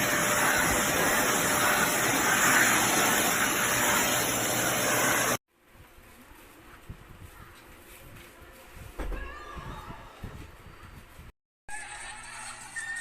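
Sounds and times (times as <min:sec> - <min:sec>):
stick vacuum cleaner running: 0:00.0 - 0:05.4.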